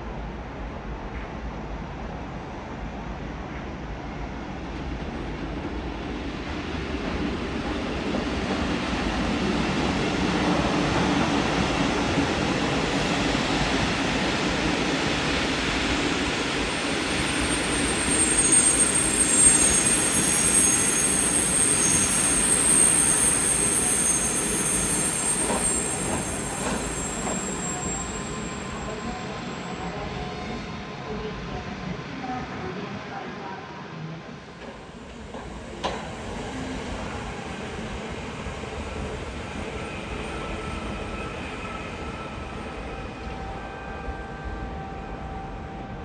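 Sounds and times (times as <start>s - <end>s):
train rumbling: 0.0s - 46.0s
high wheel squeal: 16.9s - 29.9s.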